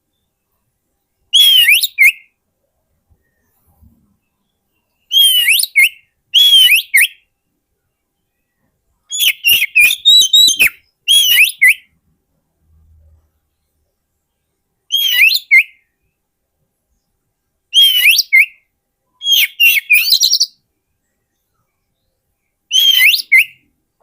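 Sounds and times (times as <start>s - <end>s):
bird singing whistled notes: 0.1s - 2.4s, 3.1s - 7.6s, 8.2s - 12.0s, 14.9s - 16.2s, 17.7s - 23.8s.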